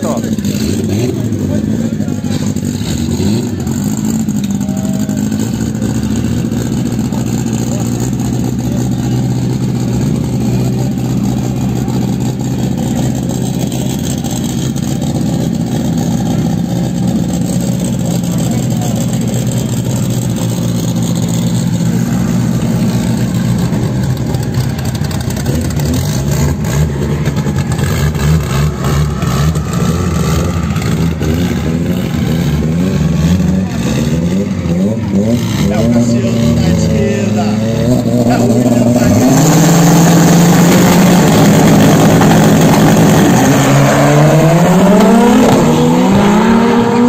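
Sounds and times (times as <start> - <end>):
drag car engines idling and revving: 0.0 - 47.0.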